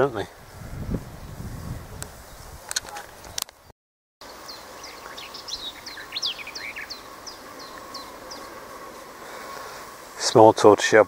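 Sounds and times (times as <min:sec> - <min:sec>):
birds chirping: 0:02.2 - 0:11.0
bird singing downward-sliding notes: 0:04.2 - 0:10.5.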